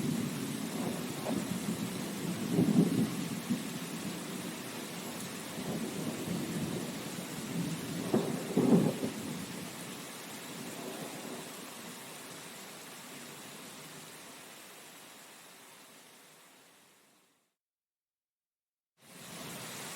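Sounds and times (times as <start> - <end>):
low rumbles of thunder: 0.0 - 9.7, 10.6 - 11.6
steady rain: 0.0 - 17.6, 19.0 - 19.9.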